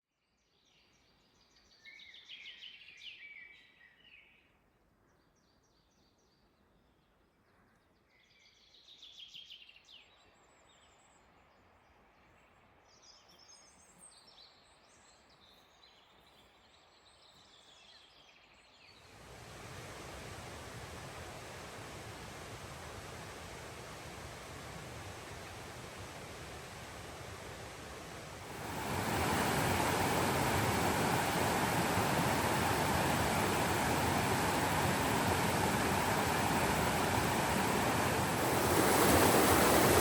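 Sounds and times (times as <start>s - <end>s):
songbirds singing faintly: 0.2s - 40.0s
steady even hiss: 19.0s - 40.0s.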